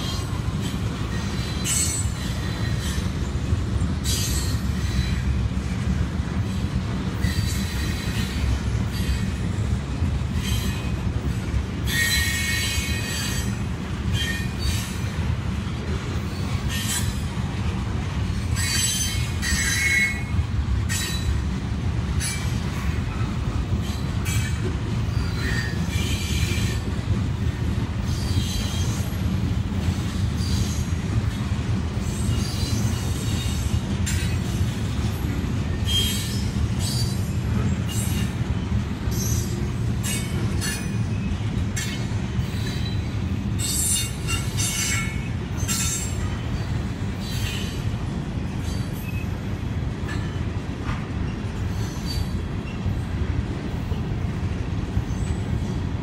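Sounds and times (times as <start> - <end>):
train wheels rumbling on rail: 0.0 - 56.0
wheel squeals and clanks: 18.5 - 20.3, 32.0 - 47.9, 50.1 - 52.9.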